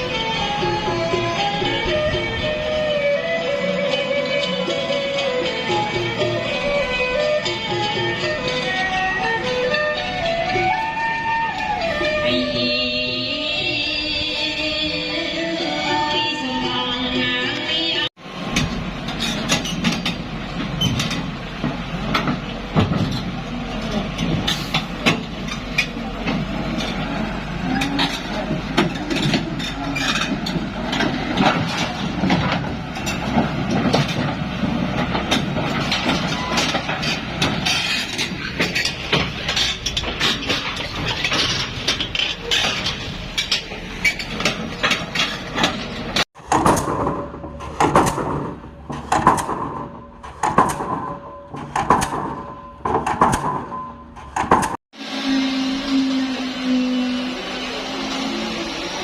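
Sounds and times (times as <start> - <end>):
clanks and knocks: 18.4 - 54.8
machinery engine running: 55.0 - 59.0.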